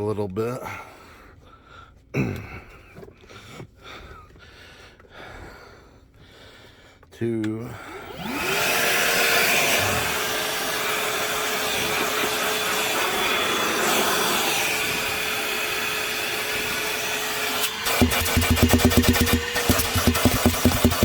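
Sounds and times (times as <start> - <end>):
shop vacuum motor whine: 7.9 - 21.0.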